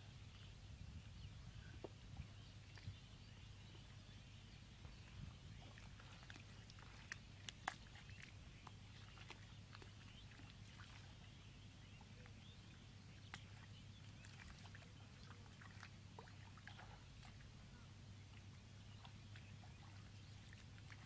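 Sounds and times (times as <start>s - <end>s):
low steady hum: 0.0s - 21.0s
wet mud clicking and popping: 7.1s - 8.0s.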